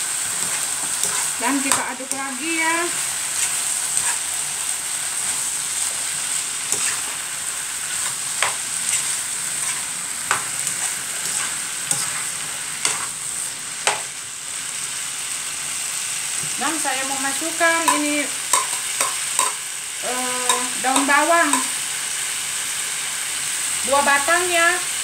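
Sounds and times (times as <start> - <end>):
food sizzling in a pan: 0.0 - 25.0
utensil knocking against pan: 17.9 - 19.6.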